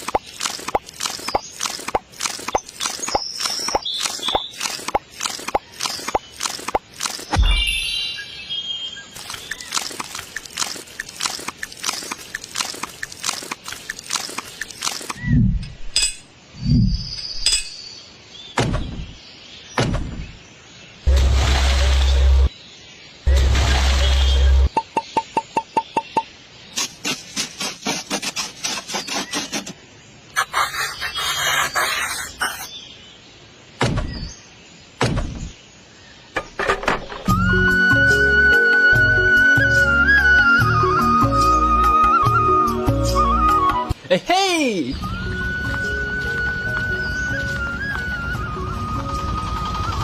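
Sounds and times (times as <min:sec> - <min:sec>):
flute music: 0:37.3 - 0:44.0, 0:44.9 - 0:50.0.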